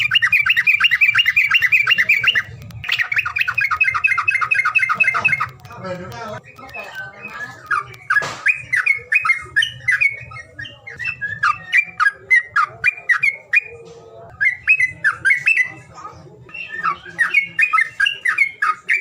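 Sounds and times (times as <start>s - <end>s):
songbird singing whistled notes: 0.0s - 5.8s, 6.4s - 19.0s.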